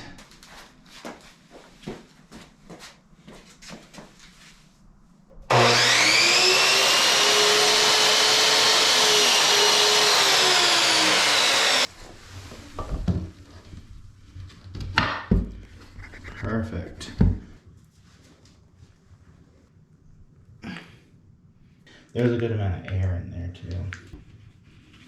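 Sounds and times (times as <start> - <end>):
electric power tool motor: 5.5 - 11.9.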